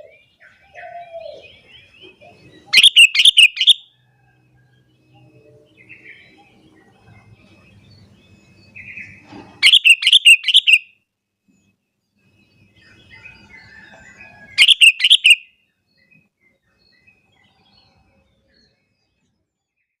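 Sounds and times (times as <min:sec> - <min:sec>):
bird singing quick notes: 0:02.7 - 0:03.8, 0:09.6 - 0:10.9, 0:14.6 - 0:15.4.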